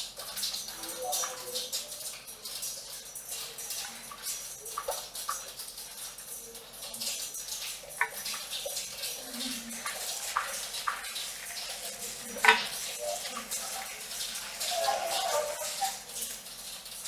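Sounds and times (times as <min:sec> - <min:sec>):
rain on a metal roof: 0:00.0 - 0:17.0
water splashing: 0:07.9 - 0:17.0.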